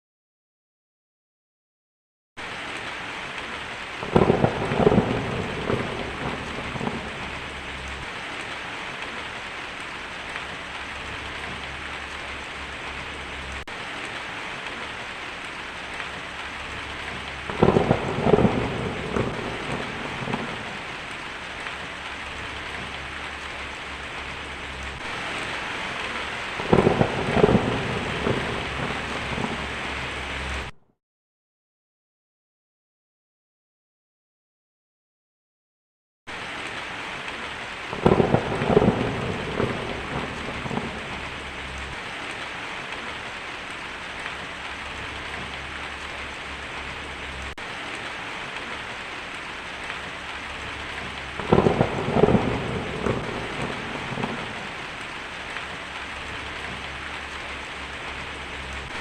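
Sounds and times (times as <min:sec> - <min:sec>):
heavy rain on a tin roof: 0:02.4 - 0:30.8, 0:36.3 - 0:59.0
rolling thunder: 0:04.0 - 0:08.4, 0:16.6 - 0:21.2, 0:22.3 - 0:30.7, 0:37.9 - 0:42.0, 0:50.4 - 0:55.5.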